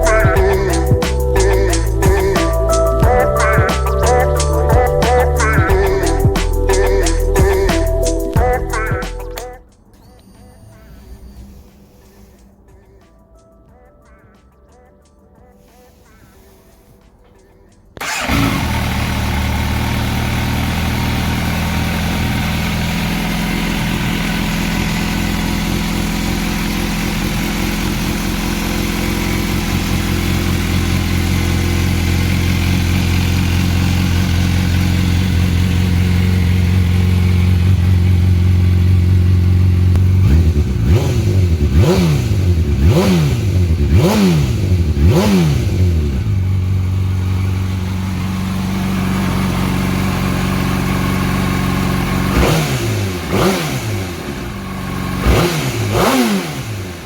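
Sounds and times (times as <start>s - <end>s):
motorcycle engine idling: 0.0s - 7.7s, 18.0s - 55.3s
motorcycle engine revving: 18.0s - 57.0s.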